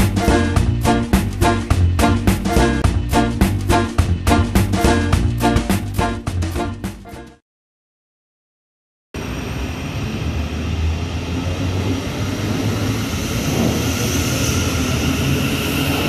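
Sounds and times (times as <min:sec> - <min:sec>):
train rumbling past: 0:00.0 - 0:06.0, 0:09.2 - 0:16.0.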